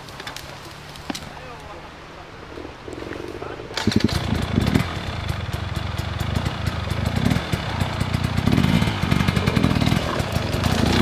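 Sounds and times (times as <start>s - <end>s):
dirt bike engine throttle blips: 3.8s - 11.0s.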